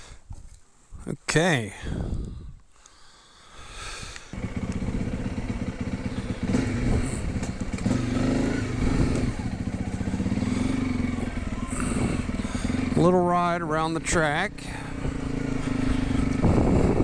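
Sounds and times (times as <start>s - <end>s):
motorcycle engine revving: 4.3s - 17.0s.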